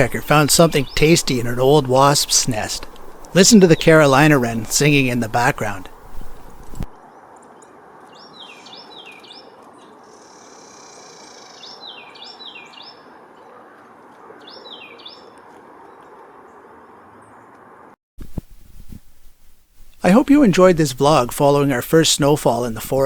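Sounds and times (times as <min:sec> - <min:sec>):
background hiss: 0:00.0 - 0:13.2, 0:18.2 - 0:23.0
wren singing: 0:00.0 - 0:13.8, 0:14.4 - 0:17.5.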